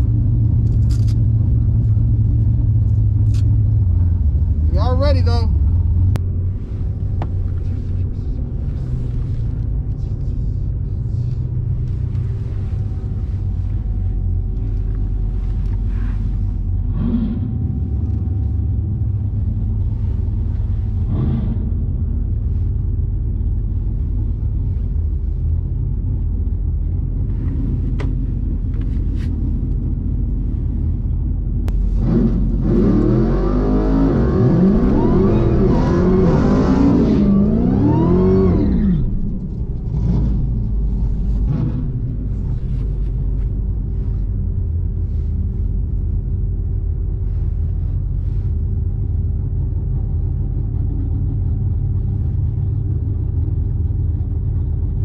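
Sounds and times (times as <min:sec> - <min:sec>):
car engine revving: 0:00.0 - 0:22.7, 0:31.7 - 0:48.8
car engine idling: 0:00.0 - 0:55.0.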